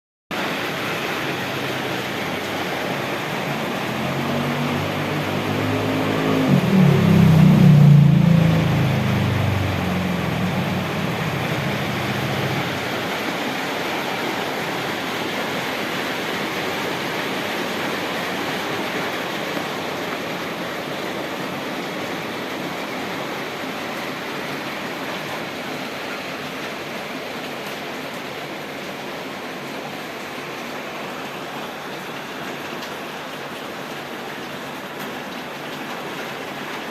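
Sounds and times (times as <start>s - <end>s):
heavy rain falling: 0.3s - 36.9s
vehicle engine passing: 1.1s - 14.1s.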